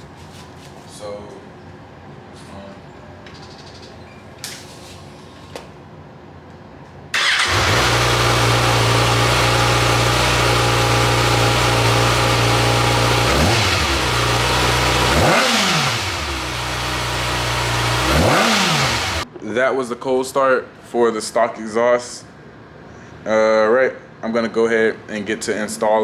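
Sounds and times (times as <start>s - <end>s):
motorcycle engine idling and revving: 7.2s - 19.3s.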